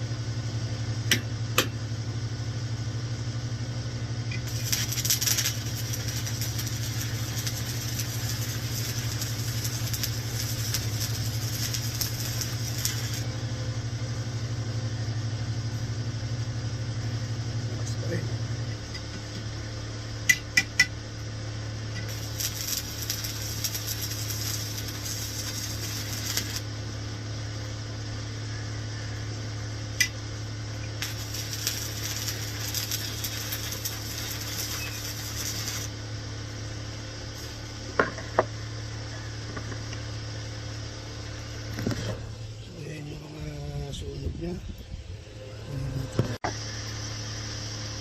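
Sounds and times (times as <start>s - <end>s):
low steady hum: 0.0s - 48.0s
welding arc crackling: 4.3s - 14.9s, 17.0s - 37.7s.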